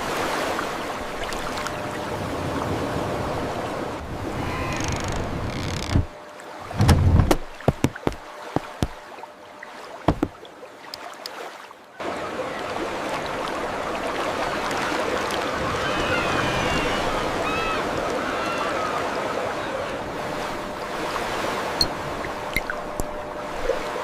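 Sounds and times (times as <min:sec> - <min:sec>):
sea waves: 0:00.0 - 0:24.0
sharp knocks: 0:10.1 - 0:10.4.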